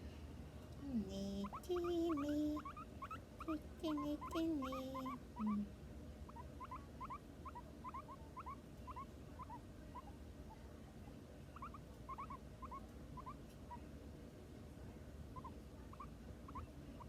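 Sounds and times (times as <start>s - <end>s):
small pet animal squeaking: 1.4s - 5.7s, 6.3s - 10.6s, 11.5s - 13.8s, 15.4s - 17.0s.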